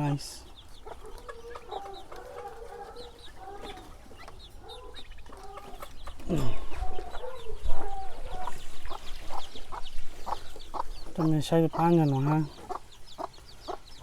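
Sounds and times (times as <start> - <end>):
chickens clucking: 0.0 - 14.0
chicks peeping: 0.0 - 14.0.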